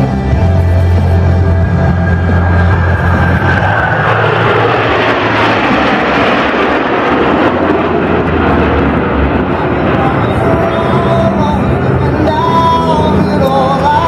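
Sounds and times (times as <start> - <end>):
music: 0.0 - 6.0, 9.6 - 14.0
jets roaring past: 0.0 - 14.0.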